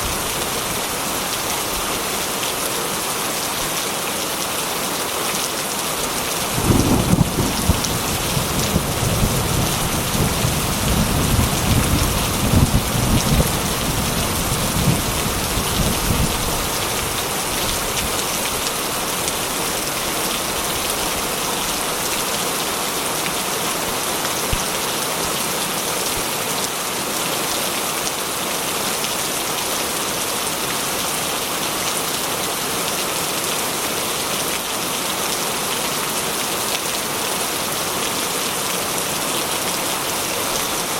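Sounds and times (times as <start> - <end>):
heavy rain on metal roof: 0.0 - 40.9
thunder rumbling: 6.4 - 16.8.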